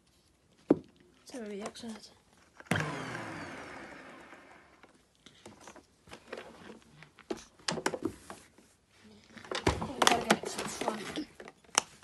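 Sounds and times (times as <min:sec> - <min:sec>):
vacuum cleaner motor winding down: 0:02.7 - 0:05.0.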